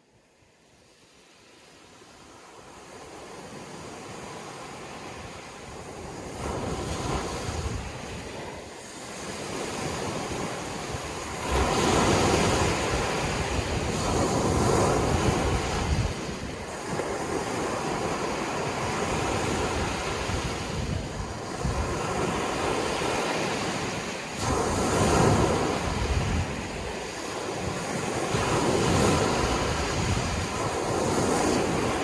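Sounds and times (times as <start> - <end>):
sea waves washing in: 0.3 - 32.0.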